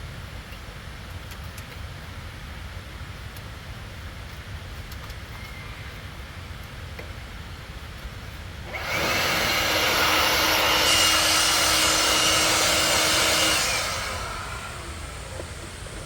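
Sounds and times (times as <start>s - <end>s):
faint steady motor whine: 5.2s - 16.0s
motor-driven tool rushing hiss: 8.7s - 16.0s.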